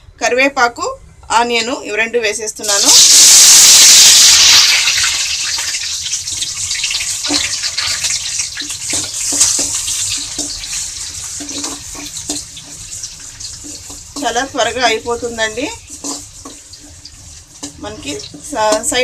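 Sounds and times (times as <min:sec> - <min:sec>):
onion sizzling in hot oil: 0:02.6 - 0:19.0
oil crackling and popping: 0:02.7 - 0:14.3
spatula stirring in pan: 0:05.5 - 0:19.0.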